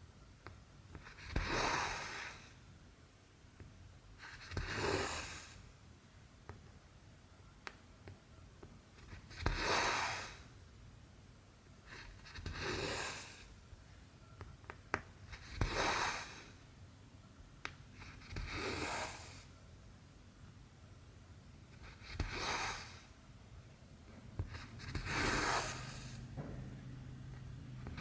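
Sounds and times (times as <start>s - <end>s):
thread drawn through fabric: 24.4s - 26.3s.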